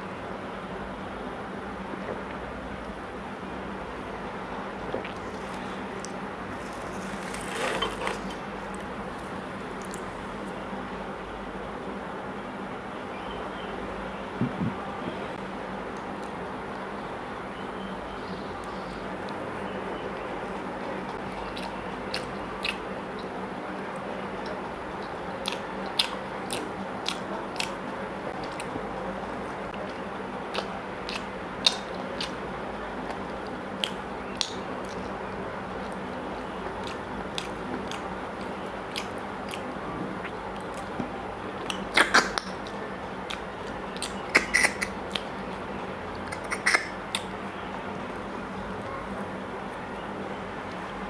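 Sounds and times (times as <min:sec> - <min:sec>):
steady low hum: 0:00.0 - 0:51.0
person chewing with wet mouth clicks: 0:21.5 - 0:23.3, 0:24.4 - 0:27.8, 0:29.9 - 0:32.4, 0:33.0 - 0:35.1, 0:36.8 - 0:41.0, 0:41.6 - 0:47.3.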